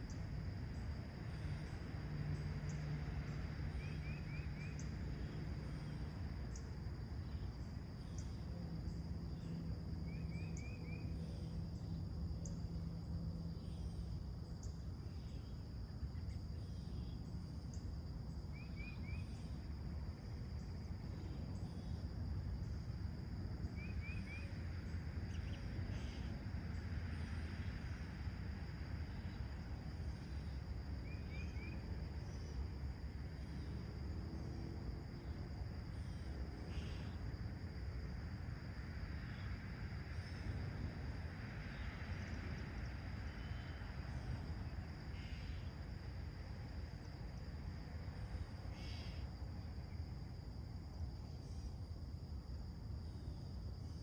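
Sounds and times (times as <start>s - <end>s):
high insect drone: 0.0s - 54.0s.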